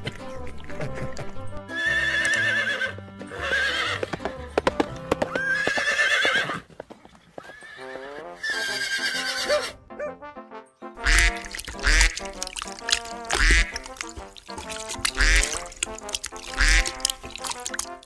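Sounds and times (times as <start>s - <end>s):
background music: 0.0s - 6.4s, 7.8s - 18.0s
horse whinnying: 1.7s - 4.3s, 5.2s - 6.7s, 7.4s - 9.8s.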